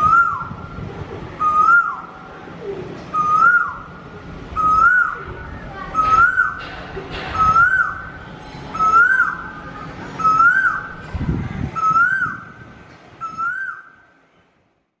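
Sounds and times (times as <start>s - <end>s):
bird whistled call: 0.0s - 0.6s, 1.4s - 2.1s, 3.1s - 3.9s, 4.6s - 6.6s, 7.3s - 9.6s, 10.2s - 11.0s, 11.8s - 12.6s, 13.2s - 14.1s.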